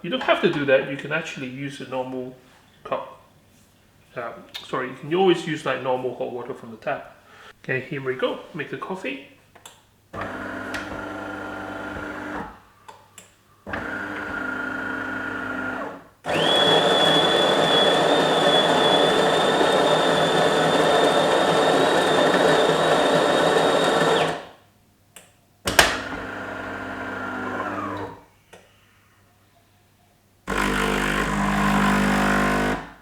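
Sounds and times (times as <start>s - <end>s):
coffee machine motor humming: 10.2s - 12.5s, 13.7s - 24.4s, 30.5s - 32.9s
grinder grinding beans: 10.2s - 12.5s, 13.7s - 24.5s.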